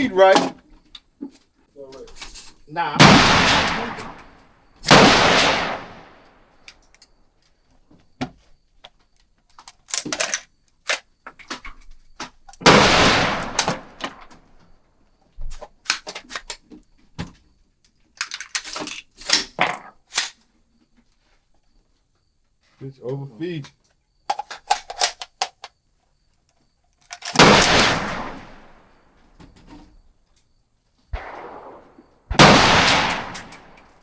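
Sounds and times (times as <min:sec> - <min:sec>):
rifle shots: 0:03.0 - 0:06.2, 0:12.6 - 0:14.2, 0:27.3 - 0:28.8, 0:31.2 - 0:34.0
metallic clicks of rifle being worked: 0:09.4 - 0:12.6, 0:18.1 - 0:20.4, 0:24.3 - 0:25.8, 0:26.5 - 0:28.5.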